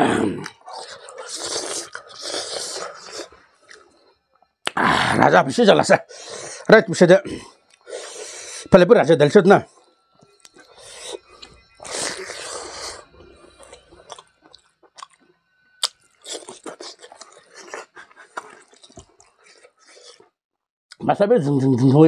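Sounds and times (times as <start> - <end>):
open-mouth chewing with smacks: 0.4 - 4.8, 10.3 - 20.3.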